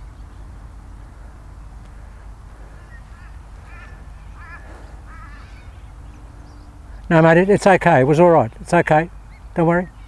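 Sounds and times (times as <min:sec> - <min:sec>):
bird wavering calls: 0:02.6 - 0:07.4.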